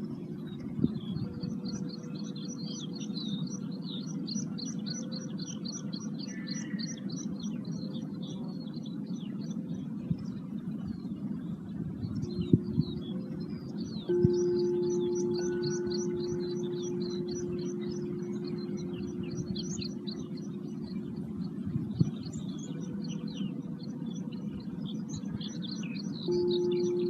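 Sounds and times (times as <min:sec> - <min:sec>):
low background rumble: 0:00.0 - 0:27.0
wild bird singing: 0:00.0 - 0:27.0
faint held tone: 0:12.2 - 0:22.6, 0:26.3 - 0:27.0.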